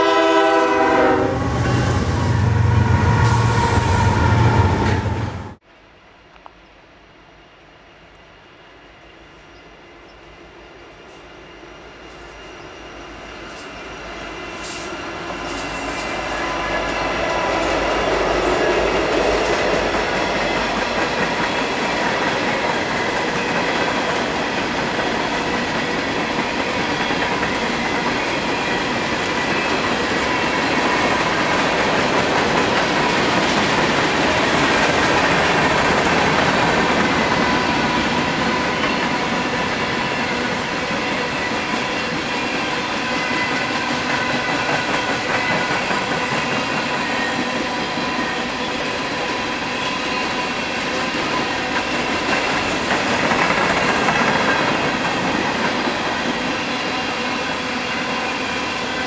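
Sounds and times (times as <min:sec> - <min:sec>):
diesel locomotive engines rumbling: 0:00.0 - 0:05.6, 0:07.0 - 0:59.0
wheel-on-rail noise: 0:13.3 - 0:58.6.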